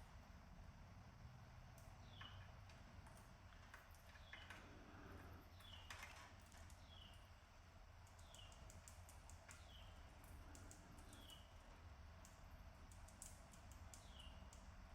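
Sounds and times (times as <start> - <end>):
light clicks and taps: 1.7 - 4.8, 8.0 - 11.5, 12.2 - 14.7
faint canary calls: 9.5 - 11.6.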